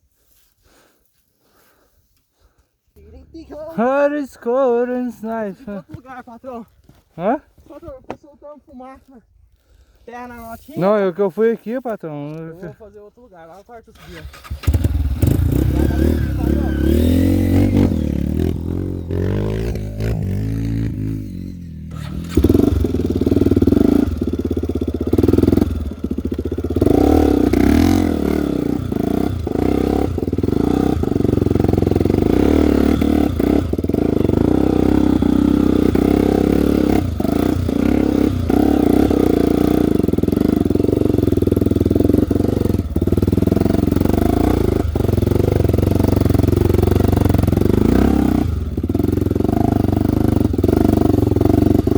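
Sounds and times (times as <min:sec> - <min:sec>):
motorcycle engine revving: 0:13.9 - 0:51.9.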